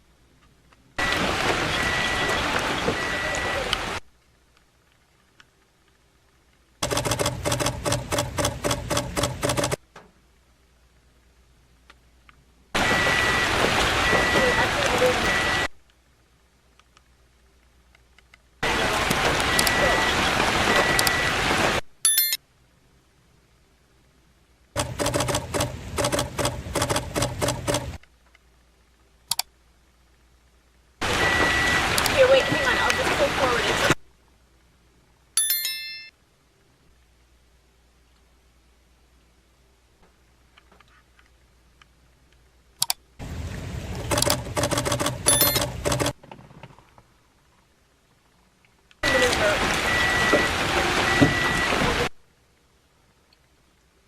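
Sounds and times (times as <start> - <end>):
faint steady tones: 0.0 - 44.2
heavy rain hissing: 1.0 - 4.1, 12.8 - 15.8, 18.6 - 21.9, 31.0 - 34.0, 43.2 - 45.3, 49.0 - 52.2
rapid sharp clicks: 6.8 - 9.8, 24.8 - 28.2, 44.1 - 46.2.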